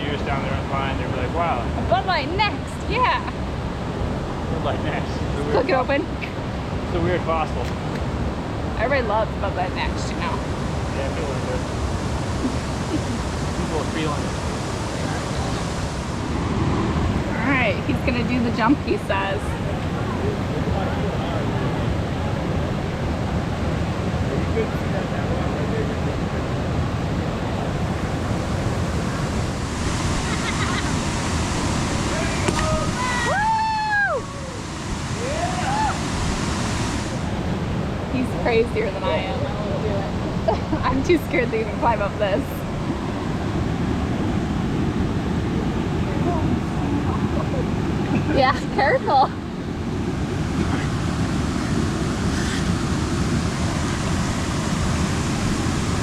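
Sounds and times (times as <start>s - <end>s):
waterfall pouring into pool: 29.8s - 37.3s.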